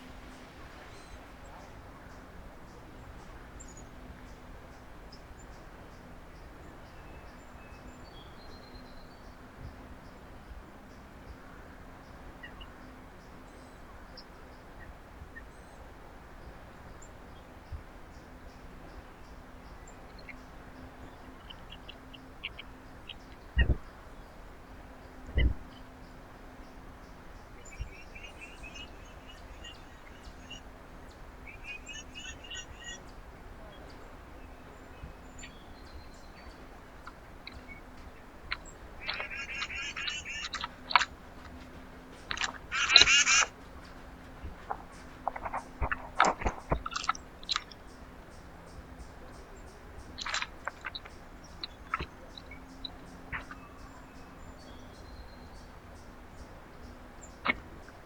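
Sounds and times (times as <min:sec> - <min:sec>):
steady background hiss: 0:00.0 - 0:58.0
steady low hum: 0:15.4 - 0:58.0
faint bird chirps: 0:18.5 - 0:24.4, 0:25.0 - 0:58.0.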